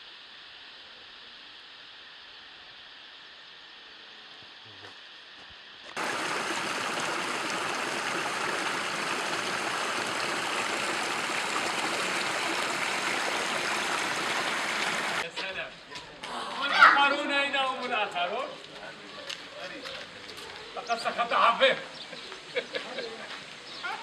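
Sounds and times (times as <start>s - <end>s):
stream water rushing: 6.0s - 15.3s.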